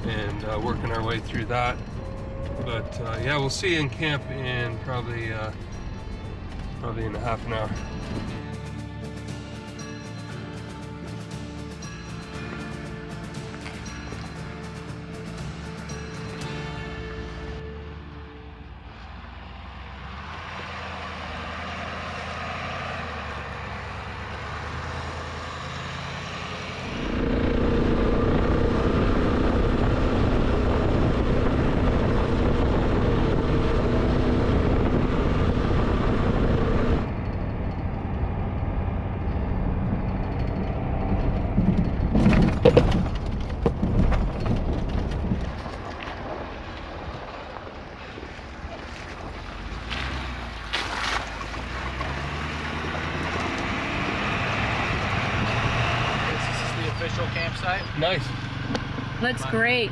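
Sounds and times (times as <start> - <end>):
off-road vehicle engine: 0.0 - 59.9
knocks and rattles: 37.1 - 46.7.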